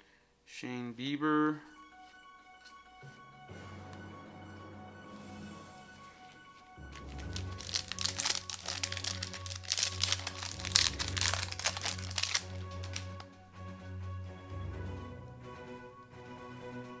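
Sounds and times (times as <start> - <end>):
wrapper crinkling: 6.9 - 13.3.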